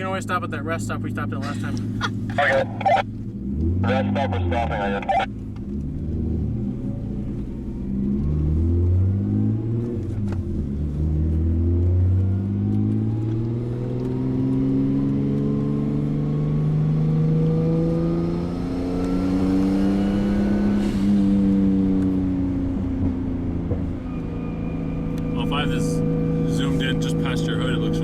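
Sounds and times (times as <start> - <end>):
car exhaust note rising: 20.0 - 28.0.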